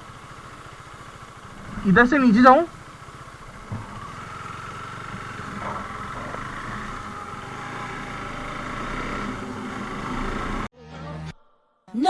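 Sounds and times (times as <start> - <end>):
motorcycle engine running: 0.0 - 10.7
steady whine: 0.0 - 10.7.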